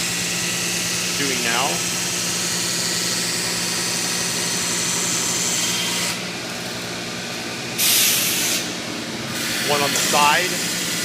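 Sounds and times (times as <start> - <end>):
grinder motor hum: 0.0 - 11.0.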